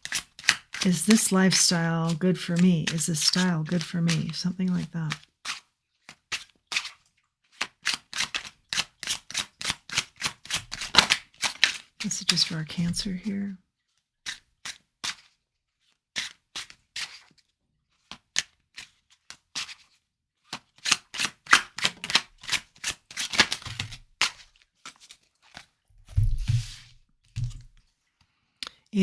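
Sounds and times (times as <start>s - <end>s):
cards shuffling with sharp snaps: 0.0s - 5.1s, 7.6s - 13.3s, 20.5s - 25.6s.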